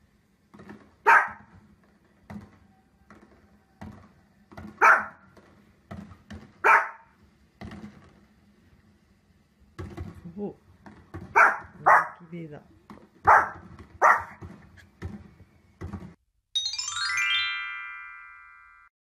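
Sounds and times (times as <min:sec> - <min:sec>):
dog barking: 0:01.0 - 0:01.5, 0:04.8 - 0:05.2, 0:06.6 - 0:07.1, 0:11.3 - 0:12.2, 0:13.2 - 0:14.4.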